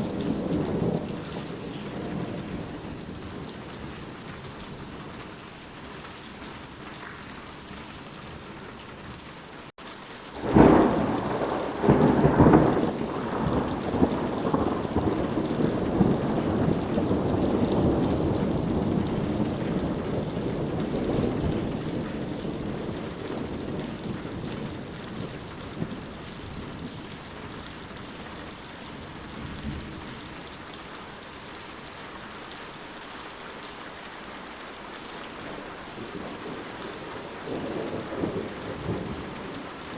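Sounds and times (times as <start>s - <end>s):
thunderclap and rumble: 0.0s - 5.0s, 10.4s - 30.4s, 35.5s - 39.9s
steady rain falling: 0.0s - 39.9s.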